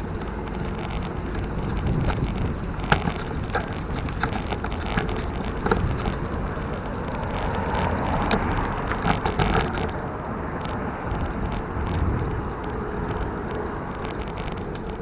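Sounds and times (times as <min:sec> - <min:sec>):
bike rattling and knocking: 0:00.0 - 0:15.0
bike tyres rumbling on rough ground: 0:00.0 - 0:15.0
wind on microphone: 0:00.0 - 0:15.0.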